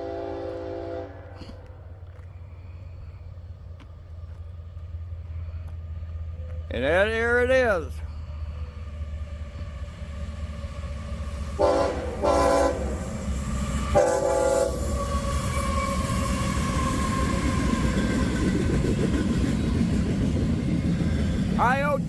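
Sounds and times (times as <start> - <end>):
locomotive air horn blasts: 0.0 - 1.7, 11.5 - 13.1, 13.8 - 16.2
train rumbling past: 0.0 - 22.0.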